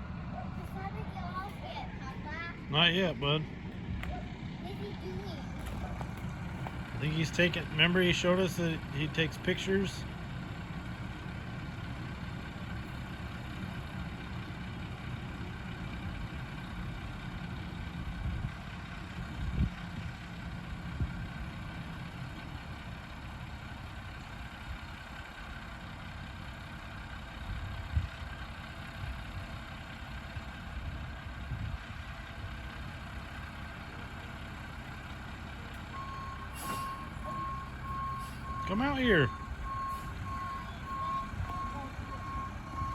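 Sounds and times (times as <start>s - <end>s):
garbage truck engine idling: 0.0s - 42.9s
reversing beeper: 35.9s - 42.9s.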